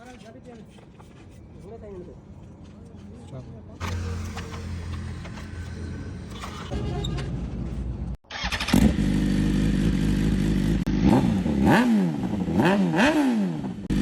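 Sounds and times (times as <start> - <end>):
engine running and revving: 3.8 - 6.6, 8.5 - 14.0.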